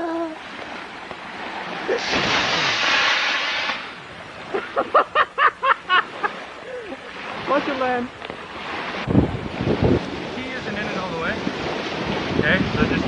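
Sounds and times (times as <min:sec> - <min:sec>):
rocket motor rushing hiss: 0:02.0 - 0:04.0.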